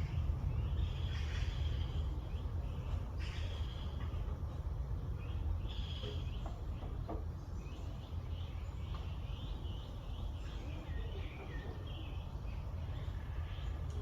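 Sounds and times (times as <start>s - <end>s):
steady low rumble: 0.0s - 6.8s
small birds chirping: 0.0s - 14.0s.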